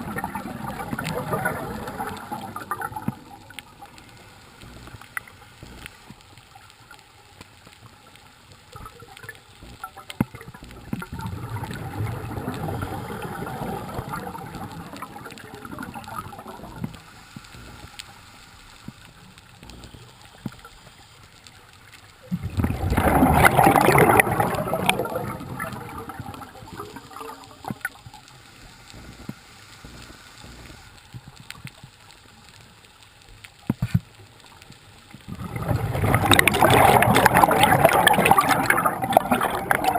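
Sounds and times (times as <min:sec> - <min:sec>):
bubbles gurgling underwater: 0:00.0 - 0:04.0, 0:08.8 - 0:17.0, 0:22.2 - 0:28.2, 0:35.3 - 0:39.9
quiet hiss: 0:00.0 - 0:39.9.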